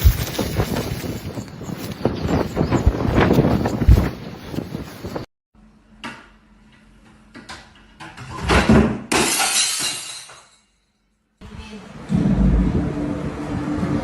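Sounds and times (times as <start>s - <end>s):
noisy crash: 12.0s - 14.0s.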